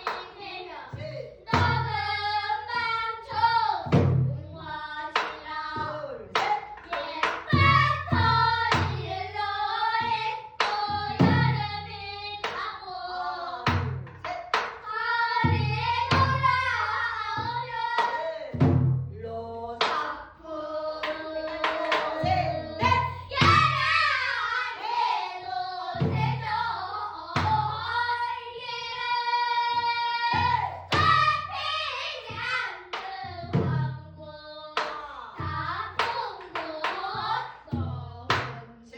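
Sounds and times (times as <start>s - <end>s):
sharp drum strokes: 21.1s - 27.9s, 29.6s - 32.6s.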